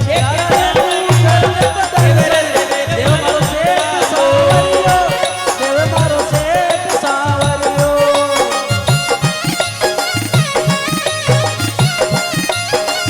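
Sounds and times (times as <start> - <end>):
ornamented folk melody: 0.0 - 13.0
steady drum beat: 0.0 - 13.0.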